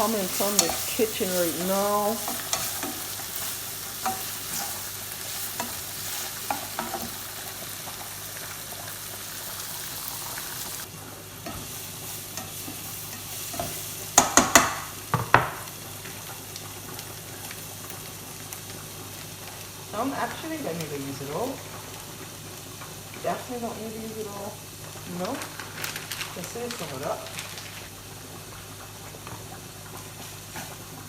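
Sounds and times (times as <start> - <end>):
utensil stirring and scraping: 0.0 - 7.3
vegetables sizzling in pan: 0.0 - 31.0.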